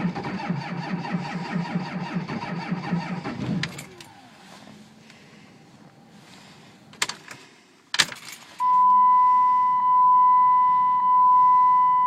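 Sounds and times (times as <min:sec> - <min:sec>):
starter cranking diesel engine: 0:00.0 - 0:05.5.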